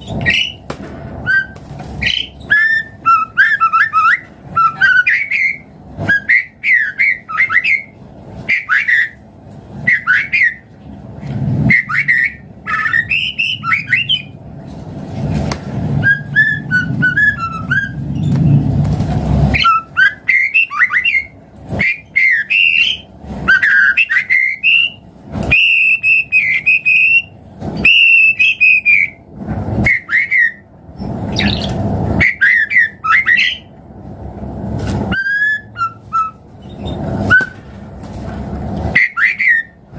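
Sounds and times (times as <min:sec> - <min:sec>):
bird singing whistled phrases: 0:00.0 - 0:00.6, 0:01.2 - 0:09.2, 0:09.8 - 0:10.7, 0:11.7 - 0:14.4, 0:16.0 - 0:18.0, 0:19.6 - 0:29.2, 0:29.8 - 0:30.7, 0:31.3 - 0:33.7, 0:35.1 - 0:37.6, 0:38.9 - 0:39.8
long held bird whistles: 0:00.1 - 0:00.6, 0:01.2 - 0:09.2, 0:09.8 - 0:10.7, 0:11.7 - 0:14.4, 0:16.0 - 0:18.0, 0:19.6 - 0:29.2, 0:29.8 - 0:30.7, 0:31.3 - 0:33.7, 0:35.1 - 0:36.4, 0:37.3 - 0:37.6, 0:38.9 - 0:39.8.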